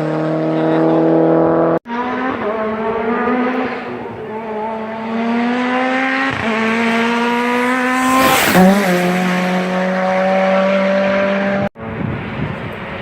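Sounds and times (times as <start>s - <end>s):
another car passing: 0.0s - 13.0s
race car engine revving: 0.0s - 13.0s.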